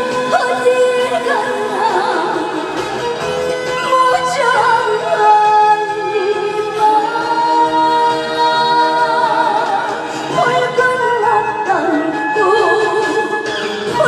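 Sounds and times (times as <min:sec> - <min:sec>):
musical accompaniment: 0:00.0 - 0:14.0
person singing with vibrato: 0:03.6 - 0:14.0.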